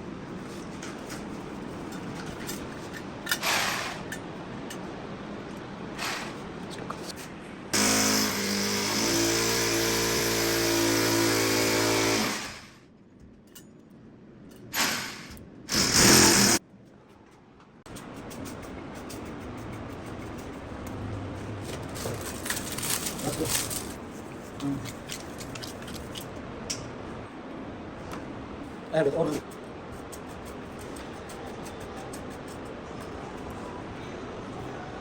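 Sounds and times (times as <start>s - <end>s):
electric drill running: 7.8s - 12.8s, 14.8s - 16.6s.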